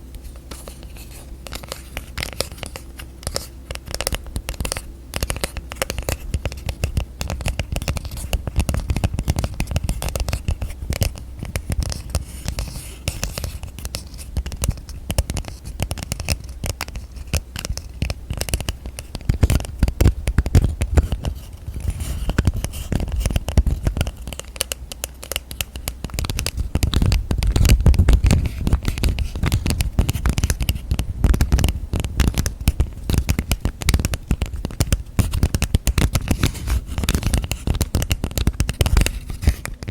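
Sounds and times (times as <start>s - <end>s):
fingers tapping on hard objects: 3.3s - 39.9s.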